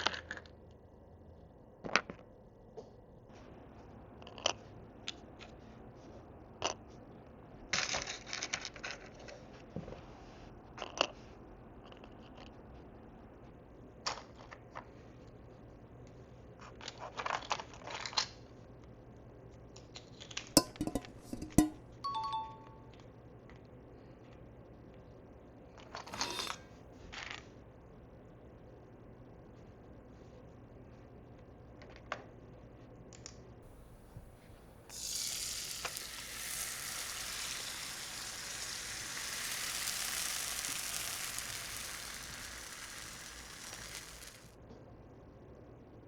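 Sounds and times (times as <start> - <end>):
rustling: 33.7 - 44.5.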